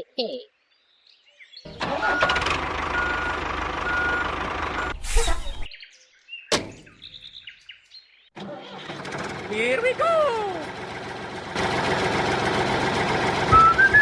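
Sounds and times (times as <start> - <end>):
truck engine running: 1.7 - 5.0, 6.5 - 7.3, 8.7 - 14.0.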